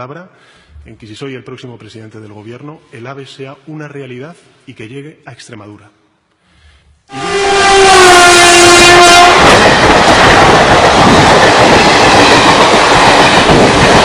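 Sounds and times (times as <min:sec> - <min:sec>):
train horn blowing: 0:07.1 - 0:09.6
train running on rails: 0:07.1 - 0:14.0.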